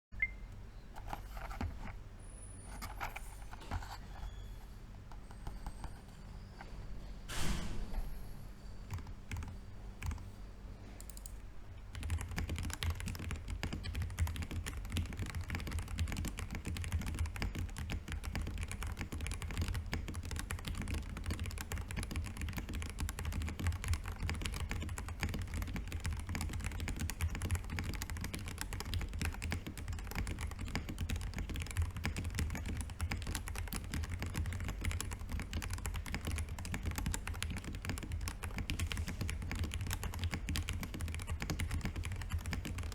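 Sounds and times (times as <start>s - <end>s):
mechanical keyboard typing: 8.9s - 10.3s, 11.0s - 42.9s.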